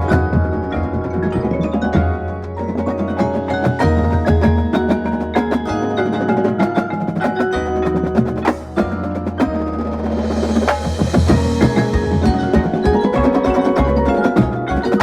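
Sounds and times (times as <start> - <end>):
marimba and bell notes: 0.0 - 15.0
quick drum strokes: 6.9 - 15.0.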